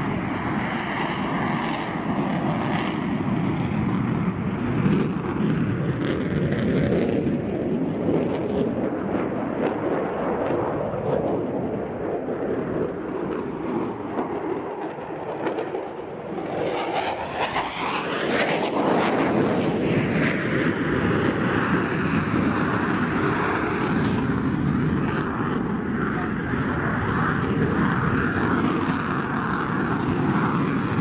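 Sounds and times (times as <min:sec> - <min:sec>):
military jet passing: 0:00.0 - 0:31.0.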